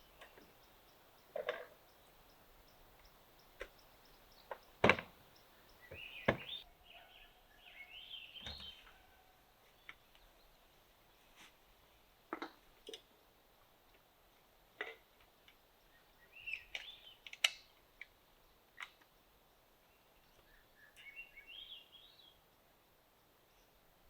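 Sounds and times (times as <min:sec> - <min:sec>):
bird chirping: 0:00.0 - 0:10.7, 0:15.8 - 0:17.7, 0:19.8 - 0:22.4
knocks and thumps of gear: 0:04.5 - 0:05.2, 0:05.9 - 0:06.6.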